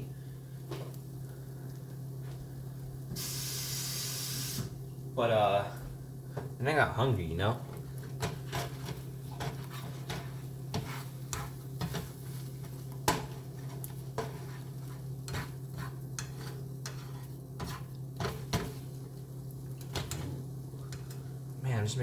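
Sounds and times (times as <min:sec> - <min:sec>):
utensil stirring eggs in dish: 0:07.6 - 0:21.5.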